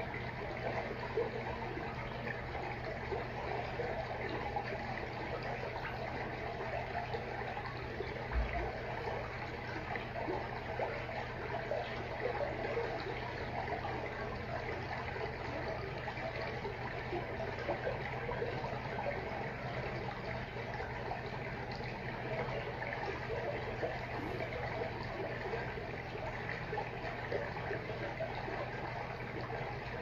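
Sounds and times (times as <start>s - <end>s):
steady low hum: 0.0s - 30.0s
water trickling and splashing: 0.0s - 30.0s.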